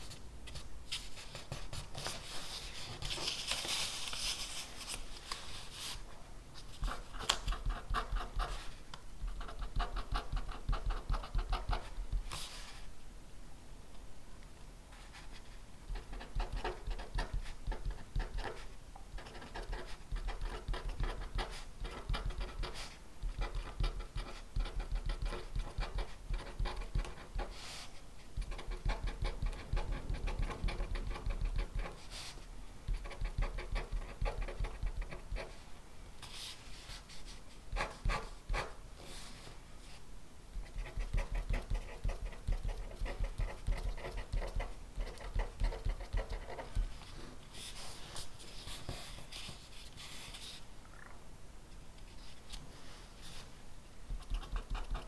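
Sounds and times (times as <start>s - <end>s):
pen scratching on paper: 15.9s - 27.6s, 28.4s - 32.2s, 32.9s - 35.6s, 40.6s - 46.8s, 54.2s - 55.0s.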